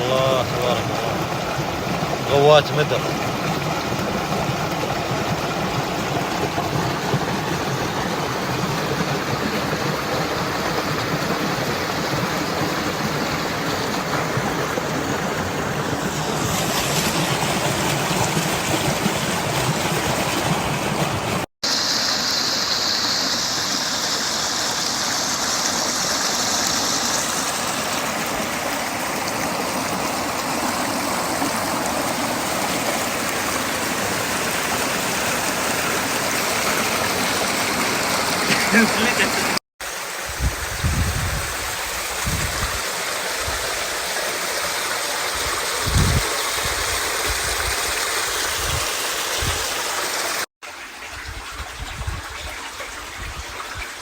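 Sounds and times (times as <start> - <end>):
rushing stream water: 0.0 - 54.0
high hiss: 21.6 - 27.4.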